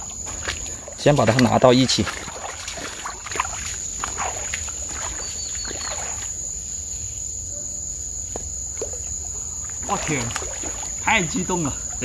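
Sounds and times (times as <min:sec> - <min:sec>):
fish splashing in water: 0:00.0 - 0:06.5, 0:08.6 - 0:11.3
insects trilling: 0:00.0 - 0:12.0.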